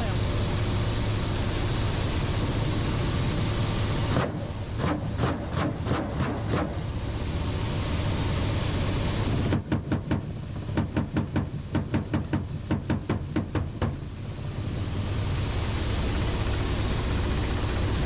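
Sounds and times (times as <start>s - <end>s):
helicopter engine and rotor noise: 0.0s - 9.5s, 14.0s - 18.0s.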